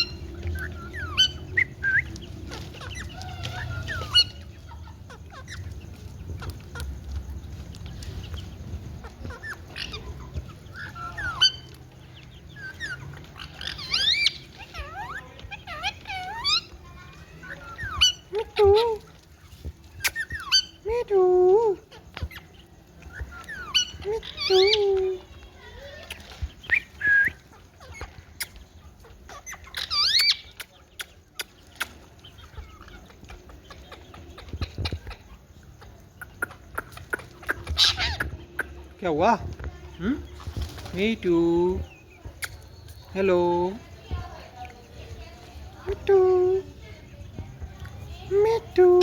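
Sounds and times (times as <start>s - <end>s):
parrot squawking: 0.0s - 6.9s, 9.1s - 11.7s, 12.6s - 19.1s, 36.3s - 38.8s
parrot chirping and squawking: 0.0s - 20.9s, 21.9s - 39.0s.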